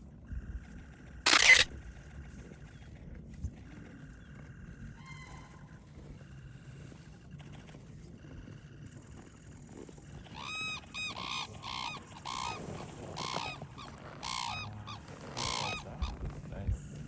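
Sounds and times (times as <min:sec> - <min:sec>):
cranes calling: 0:03.6 - 0:17.0.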